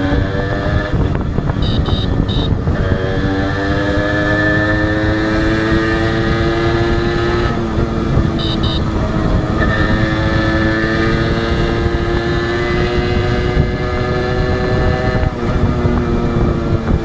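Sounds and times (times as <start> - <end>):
two-stroke motorcycle engine: 0.0 - 17.0
short high beeps: 1.6 - 2.6, 8.4 - 8.9.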